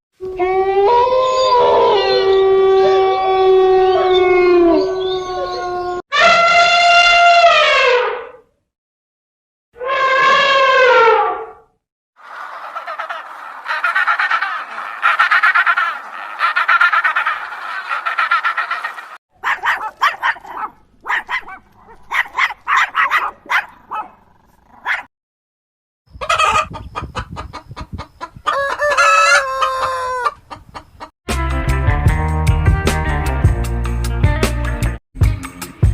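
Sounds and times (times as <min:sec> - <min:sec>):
chickens clucking: 0:12.2 - 0:23.3, 0:26.1 - 0:31.1
rooster crowing: 0:28.5 - 0:30.4.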